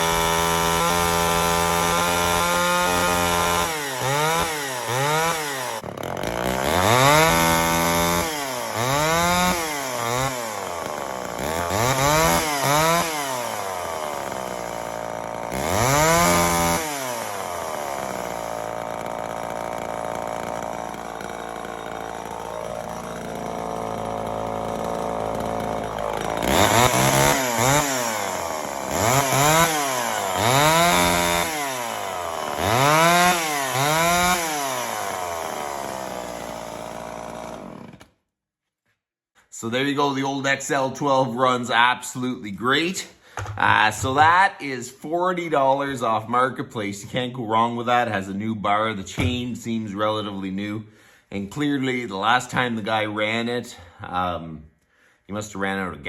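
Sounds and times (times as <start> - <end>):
chainsaw revving and idling: 0.0 - 38.2.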